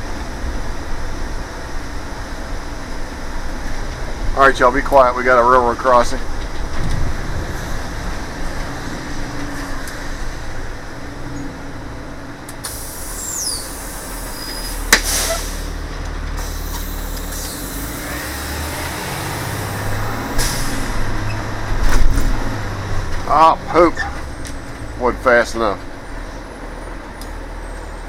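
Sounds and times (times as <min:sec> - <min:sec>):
diesel bus engine idling: 0:00.0 - 0:28.0
short high squeal: 0:12.7 - 0:15.7.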